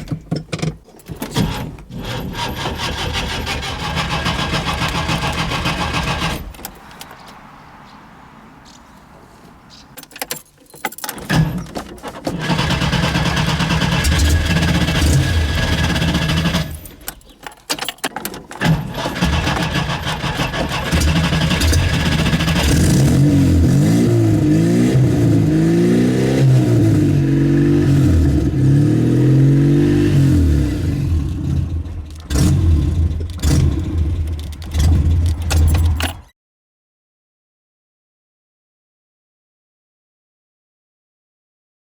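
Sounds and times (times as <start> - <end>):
car engine starting and revving: 1.4 - 6.7, 12.3 - 16.9, 18.6 - 36.1.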